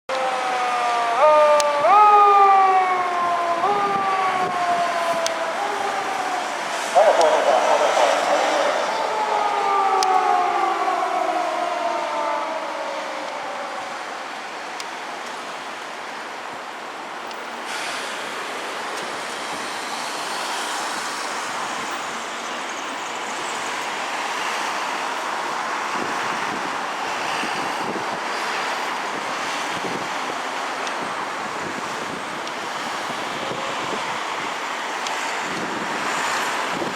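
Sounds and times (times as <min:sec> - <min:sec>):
police siren winding down: 0:00.1 - 0:14.7
road traffic noise: 0:00.1 - 0:36.9.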